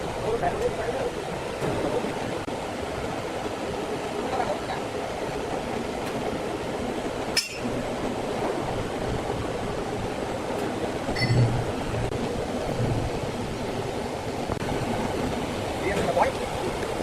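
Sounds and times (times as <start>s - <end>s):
sharp metallic clink: 7.4s - 7.8s.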